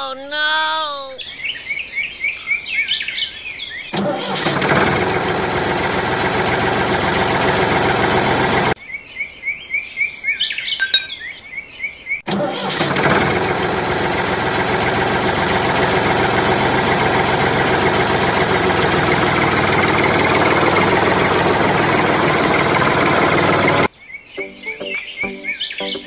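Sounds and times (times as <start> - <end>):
model tractor engine running: 14.0 - 23.9.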